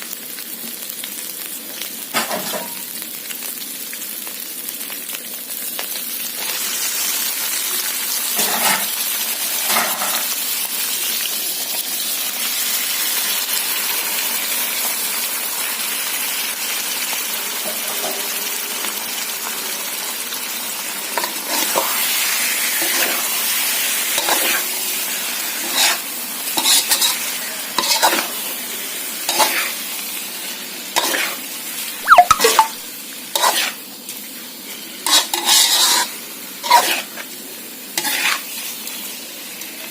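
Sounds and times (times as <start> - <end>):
stir-fry sizzling in pan: 0.0 - 39.9
spatula scraping pan: 25.6 - 28.3, 29.3 - 29.8, 31.0 - 31.4, 33.4 - 33.8, 35.0 - 37.2, 38.0 - 38.5.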